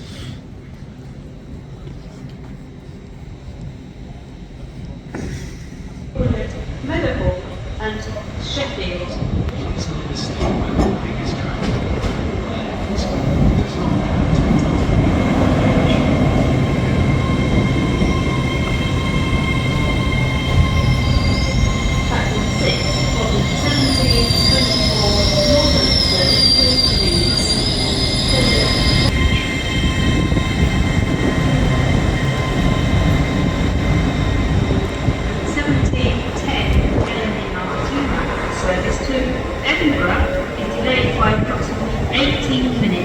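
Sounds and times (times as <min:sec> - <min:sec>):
train rumbling: 0:00.0 - 0:43.0
high brake squeal: 0:17.2 - 0:30.8.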